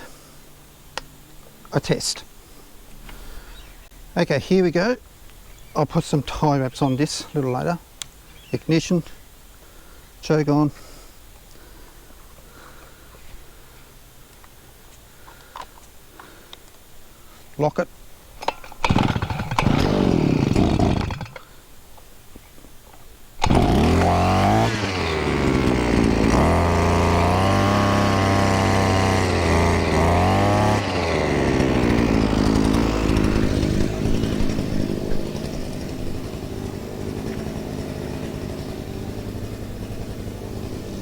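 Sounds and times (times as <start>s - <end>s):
brushcutter engine starting and revving: 18.4s - 21.6s, 23.4s - 41.0s.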